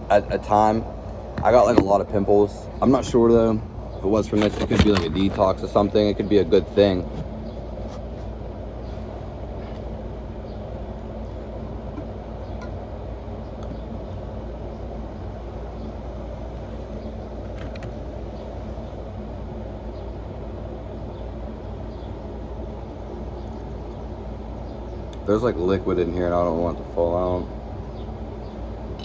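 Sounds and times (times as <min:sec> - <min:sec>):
low hum and rumble: 0:00.0 - 0:29.0.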